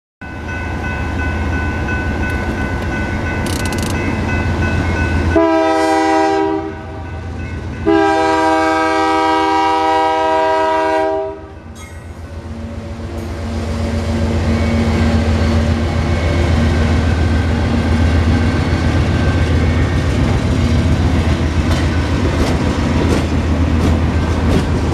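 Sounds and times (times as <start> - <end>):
locomotive air horn: 5.3 - 7.1, 7.8 - 11.6.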